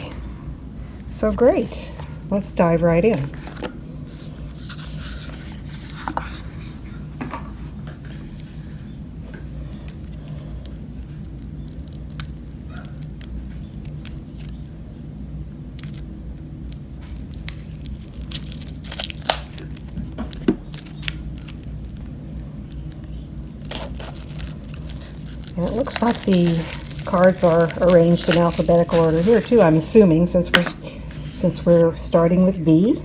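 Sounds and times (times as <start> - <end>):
low hum: 0.0 - 33.0
cards and packaging rustling: 9.7 - 14.7, 15.7 - 30.7.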